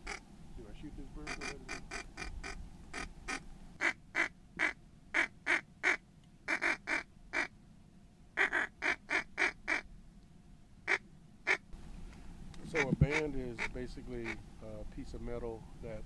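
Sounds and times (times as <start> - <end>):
duck quacking: 1.2 - 7.5, 8.4 - 9.8, 10.9 - 11.6, 12.7 - 14.4.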